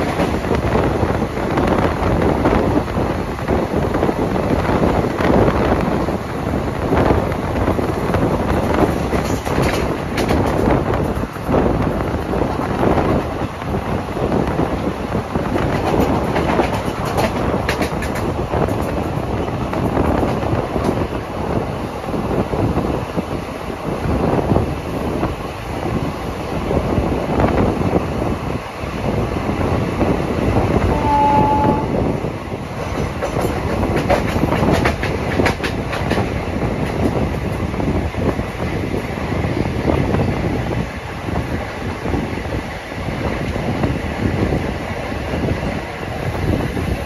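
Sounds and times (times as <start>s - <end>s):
train wheels rumbling on rail: 0.0s - 47.0s
wheels clattering over rail joints: 8.5s - 12.1s, 15.6s - 21.0s, 32.8s - 37.9s.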